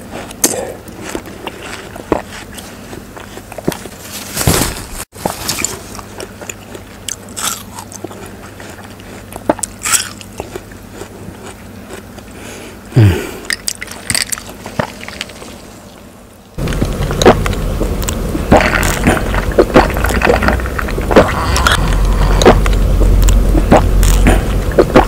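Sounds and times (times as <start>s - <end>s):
person chewing watermelon: 0.0s - 4.3s, 5.1s - 25.0s
mouth clicks: 17.2s - 25.0s.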